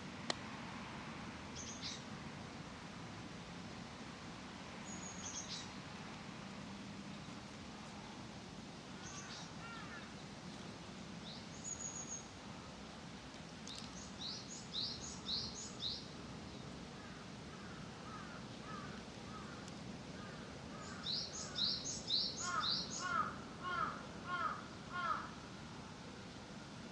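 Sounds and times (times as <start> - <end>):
songbirds singing: 1.6 - 2.0, 4.8 - 5.8, 9.0 - 10.4, 13.6 - 25.2.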